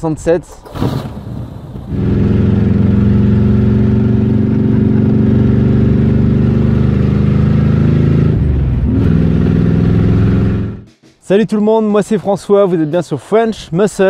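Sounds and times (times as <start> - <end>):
engine revving high: 0.8 - 10.8.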